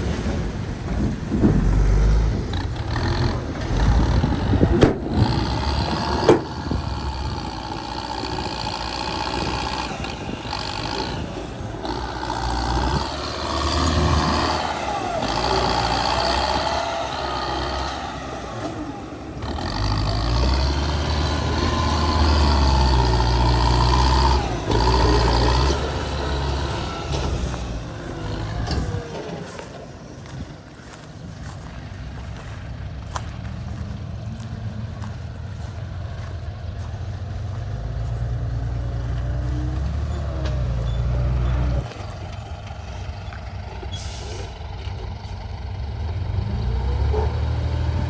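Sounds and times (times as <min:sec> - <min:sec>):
truck engine running: 0:00.0 - 0:48.0.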